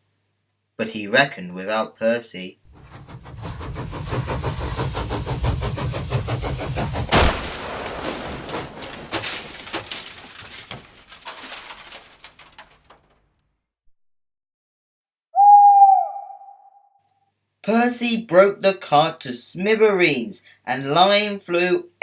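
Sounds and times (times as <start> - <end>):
steam engine chuffing: 2.7 - 7.4
loud crash: 2.7 - 13.4
smaller crashes and clatter: 2.7 - 13.6.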